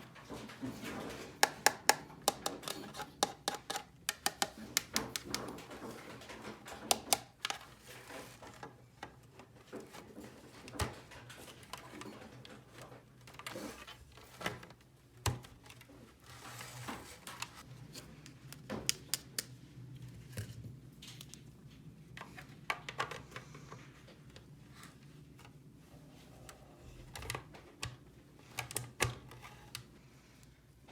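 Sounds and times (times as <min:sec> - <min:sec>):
plastic toy pieces clicking: 0:01.4 - 0:05.5.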